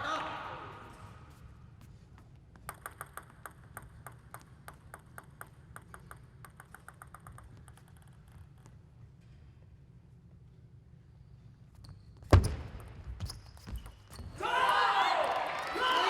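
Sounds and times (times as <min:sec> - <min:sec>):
table tennis ball ticking: 0:02.6 - 0:08.8.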